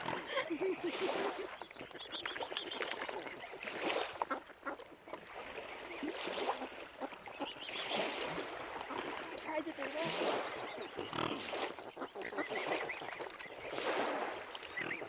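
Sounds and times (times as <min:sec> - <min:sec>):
ducks and geese calling: 0:04.0 - 0:14.0, 0:14.6 - 0:15.0.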